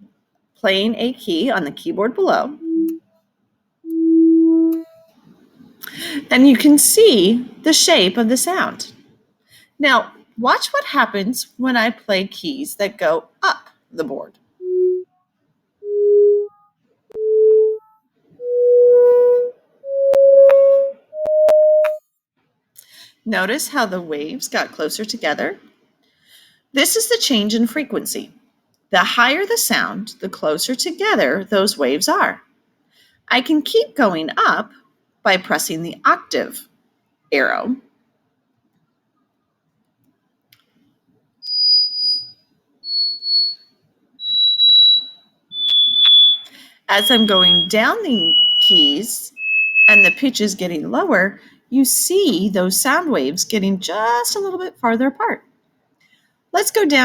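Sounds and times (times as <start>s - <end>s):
high sine-wave synthesizer notes: 2.6s - 3.0s, 3.9s - 5.1s, 42.9s - 43.6s, 44.2s - 48.8s, 49.4s - 50.2s
synthesizer sine-wave notes: 2.6s - 3.0s, 3.9s - 5.1s, 14.6s - 15.1s, 15.8s - 22.0s, 41.4s - 42.3s, 42.9s - 43.6s, 44.2s - 50.2s
sharp clicks: 44.2s - 46.6s.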